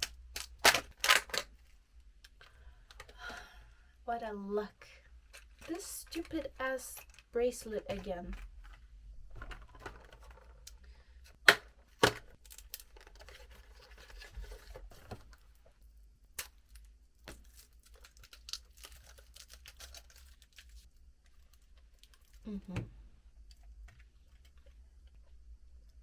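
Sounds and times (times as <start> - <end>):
packaging torn and crinkled: 0.0 - 1.7, 12.0 - 14.8, 16.3 - 22.5.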